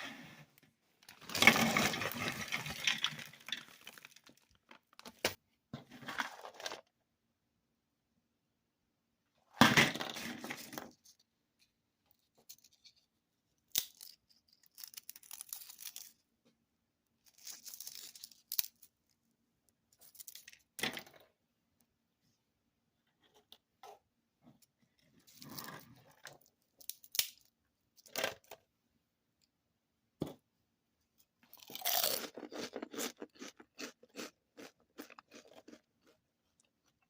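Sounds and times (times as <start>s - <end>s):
snack bag tearing and rustling: 1.1s - 4.7s.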